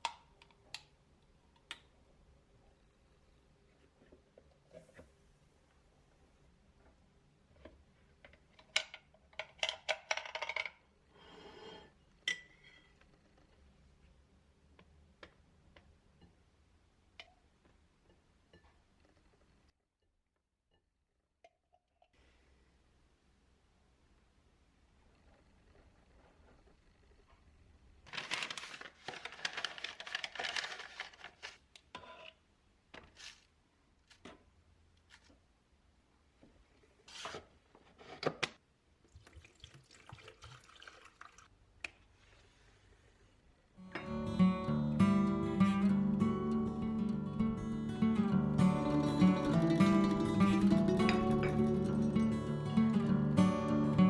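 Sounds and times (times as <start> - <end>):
crinkling rustling handling noise: 28.0 - 31.9.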